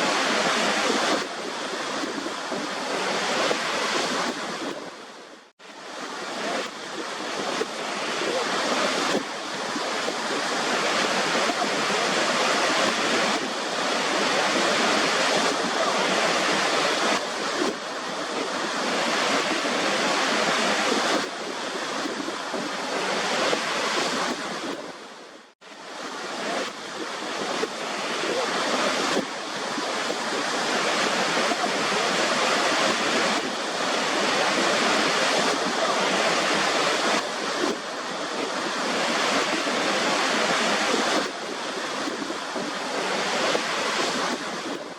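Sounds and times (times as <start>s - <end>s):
waterfall rushing: 0.0s - 4.8s, 5.7s - 25.1s, 25.8s - 44.9s.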